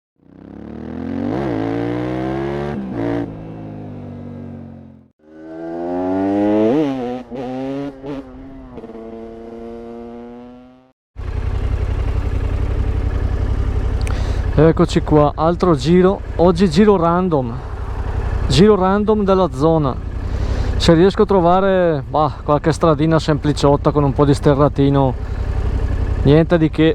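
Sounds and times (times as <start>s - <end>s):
motorcycle engine revving: 0.2s - 26.9s
engine idling: 11.2s - 26.9s.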